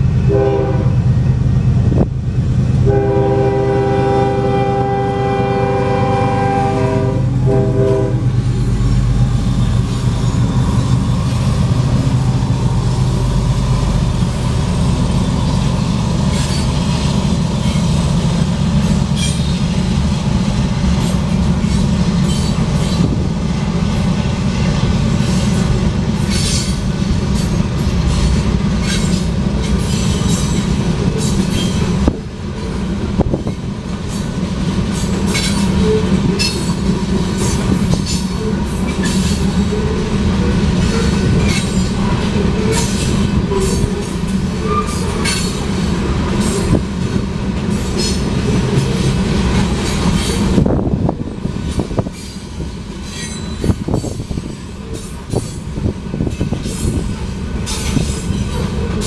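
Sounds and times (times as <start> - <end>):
train wheels rumbling on rails: 0.0 - 59.0
wheels clicking over rail joints: 25.1 - 59.0
wheel squeal: 44.6 - 45.5.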